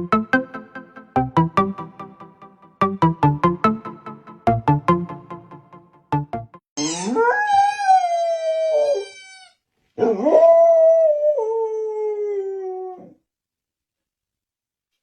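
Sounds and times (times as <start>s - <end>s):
dog howling: 7.0s - 9.4s, 10.0s - 13.2s.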